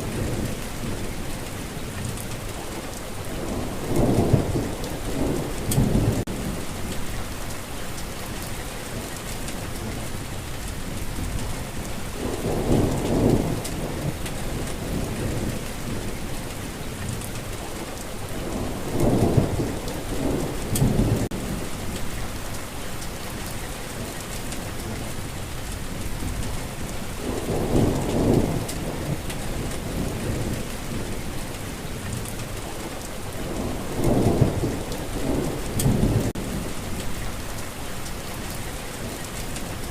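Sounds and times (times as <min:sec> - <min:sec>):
heavy rain falling: 0:00.0 - 0:39.9
low thunder rumbling: 0:03.2 - 0:07.5, 0:09.6 - 0:17.2, 0:18.3 - 0:22.5, 0:24.4 - 0:38.6
raindrops ticking: 0:32.0 - 0:39.9.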